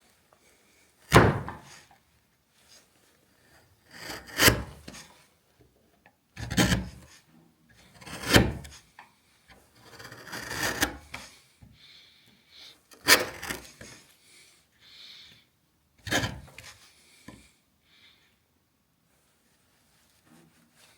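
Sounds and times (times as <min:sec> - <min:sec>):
wood chisel cutting: 0:03.9 - 0:05.0, 0:06.4 - 0:07.0, 0:07.9 - 0:08.8, 0:09.8 - 0:11.2, 0:12.9 - 0:13.9.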